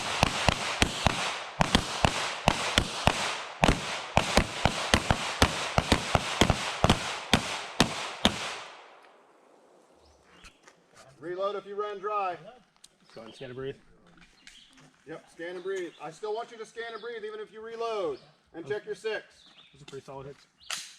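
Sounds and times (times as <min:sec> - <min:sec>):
handguns firing: 0:00.0 - 0:09.2.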